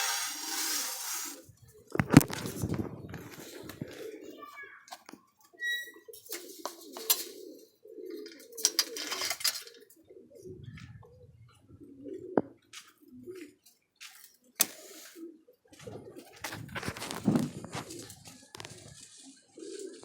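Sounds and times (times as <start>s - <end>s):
pigeons cooing: 0.0s - 13.7s, 14.4s - 20.0s.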